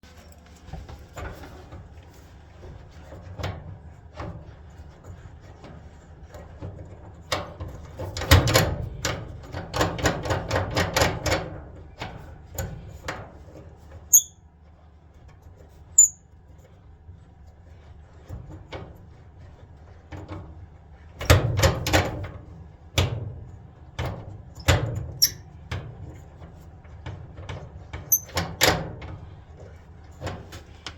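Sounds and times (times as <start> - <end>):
clothes dryer squeaking: 14.1 - 14.3, 25.2 - 25.4, 28.1 - 28.4
dryer creaks: 28.1 - 28.8.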